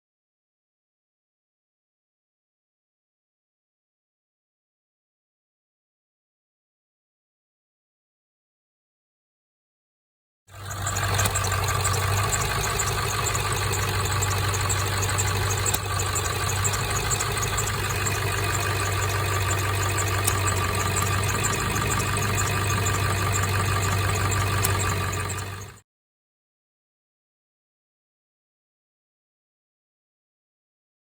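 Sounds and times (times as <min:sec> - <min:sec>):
diesel engine idling with clatter: 0:10.5 - 0:25.8.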